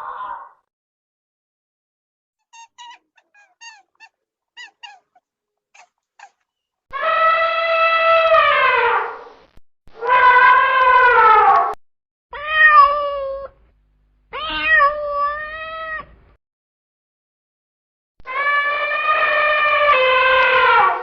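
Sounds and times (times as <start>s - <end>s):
cat meowing: 2.4s - 5.2s, 5.8s - 8.8s, 12.4s - 13.6s, 14.3s - 16.1s, 18.3s - 20.8s.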